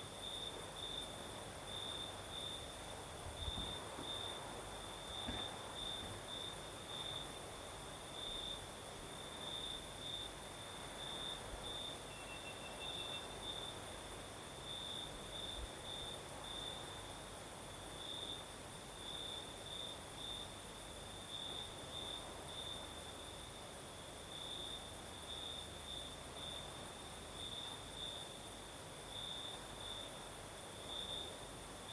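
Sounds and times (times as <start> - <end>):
fainter lower cricket: 0.0 - 31.9
crickets trilling: 1.7 - 17.0.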